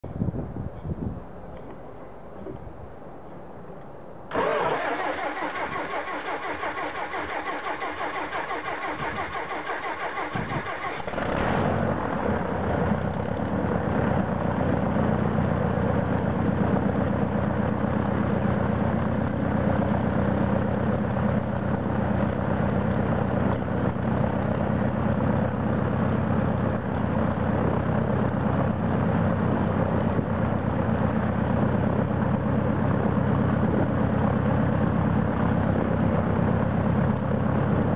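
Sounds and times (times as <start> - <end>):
aircraft starter whining: 4.3 - 13.5
aircraft engine idling: 4.3 - 37.9.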